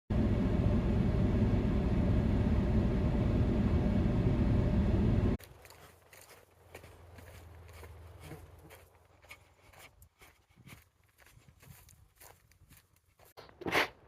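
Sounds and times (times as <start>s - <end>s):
vehicle driving rumble: 0.1s - 9.3s.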